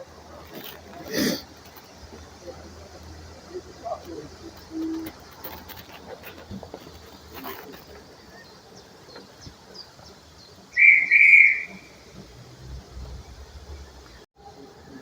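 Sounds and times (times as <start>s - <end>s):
railway whistle: 10.8s - 12.0s.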